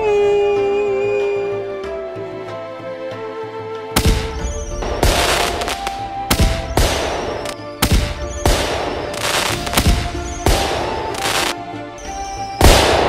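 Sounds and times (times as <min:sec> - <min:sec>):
background music: 0:00.0 - 0:13.0
fireworks banging and crackling: 0:04.0 - 0:13.0.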